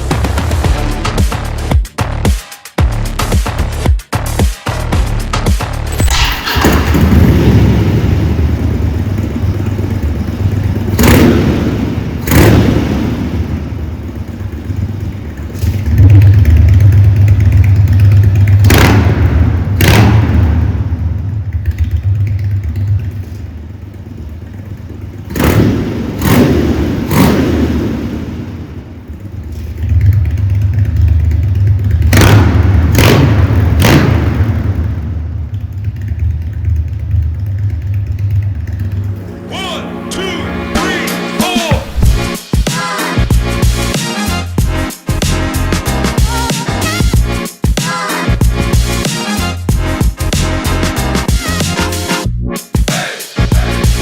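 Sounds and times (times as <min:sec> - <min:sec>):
motorcycle throttle blips: 0:06.1 - 0:39.5
motorcycle engine idling: 0:06.1 - 0:40.0, 0:41.7 - 0:42.4.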